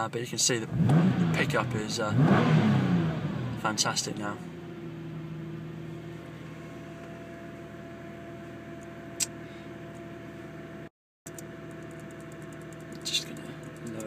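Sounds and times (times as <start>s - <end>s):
car engine idling: 0.4s - 14.0s
sharp click: 9.2s - 9.4s.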